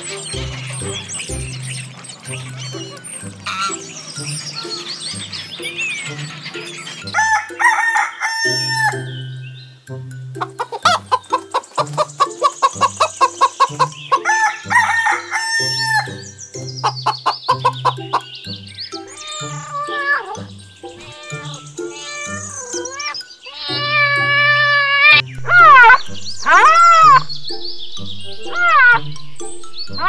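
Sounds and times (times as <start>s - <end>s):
hens clucking: 0.0s - 9.1s, 10.4s - 20.5s
background music beat: 0.0s - 19.2s, 22.9s - 30.0s
rooster crowing: 7.1s - 9.1s, 10.5s - 11.3s, 12.6s - 16.2s.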